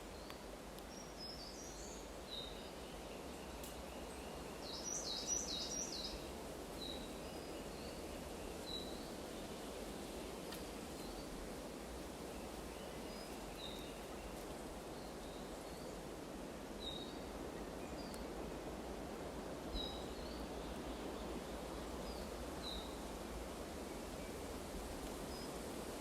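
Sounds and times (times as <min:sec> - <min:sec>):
wind rustling leaves: 0:00.0 - 0:26.0.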